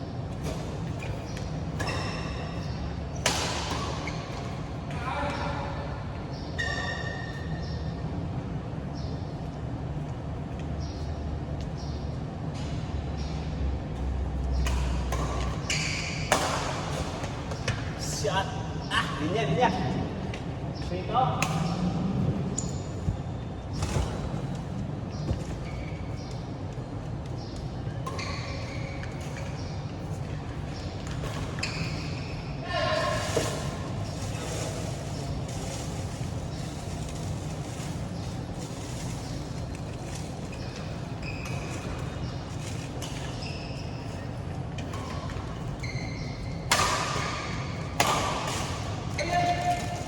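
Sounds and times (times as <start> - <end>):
shoes squeaking on court floor: 0.0 - 8.0, 9.0 - 13.3, 13.9 - 50.0
low rumble of hall: 0.0 - 50.0
racket hitting shuttlecock: 0.4 - 4.6, 14.6 - 17.9, 44.8 - 50.0.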